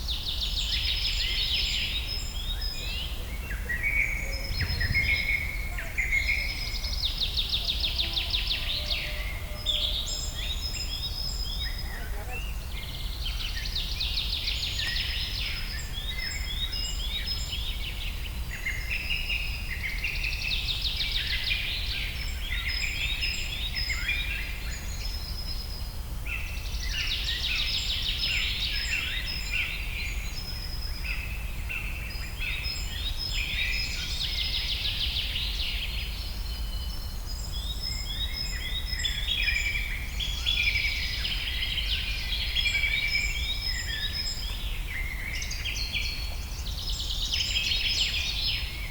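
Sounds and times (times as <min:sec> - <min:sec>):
flock of birds twittering: 0:02.3 - 0:12.7.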